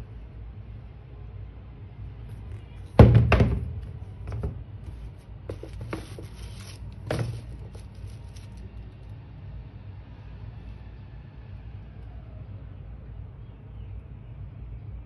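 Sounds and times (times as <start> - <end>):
light rustling: 4.3 - 8.8.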